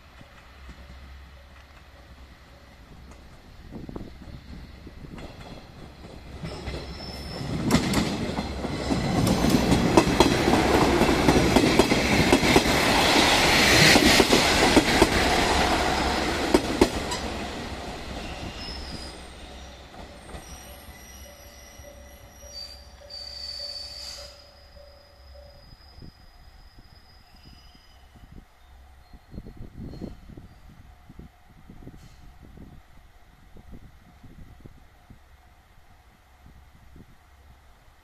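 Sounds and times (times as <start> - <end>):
diesel railcar passing: 0.0 - 38.0
brake squeals: 6.5 - 7.6, 18.2 - 28.3.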